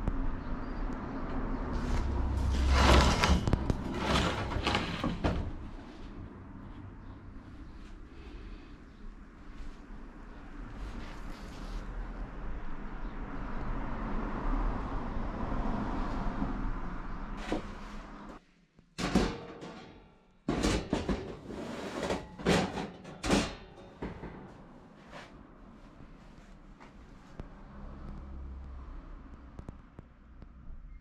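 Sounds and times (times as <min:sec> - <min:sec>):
hard objects knocking and clanking: 0:19.0 - 0:24.7.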